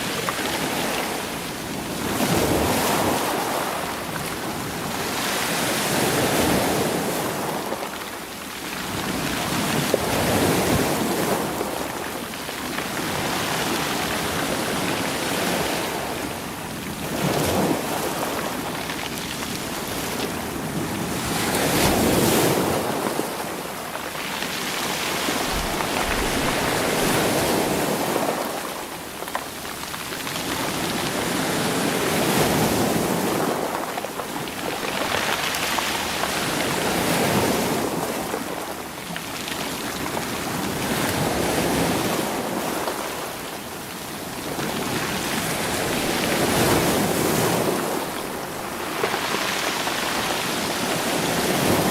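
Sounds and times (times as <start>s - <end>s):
waves breaking against rocks: 17.1s - 29.4s
stones rolling in surf: 23.9s - 28.6s.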